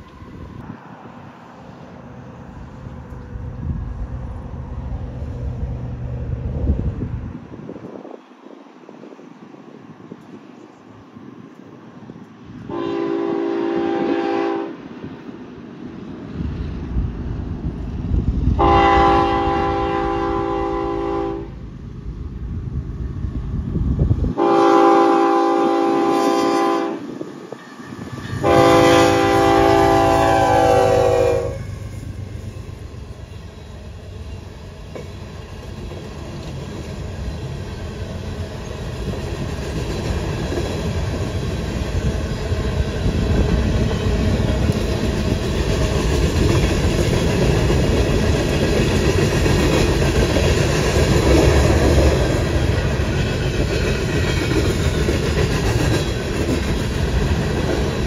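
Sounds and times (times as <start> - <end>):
train rumbling past: 0.0 - 58.0
locomotive air horn blasts: 12.7 - 14.8, 18.6 - 21.6, 24.4 - 27.1, 28.3 - 32.0.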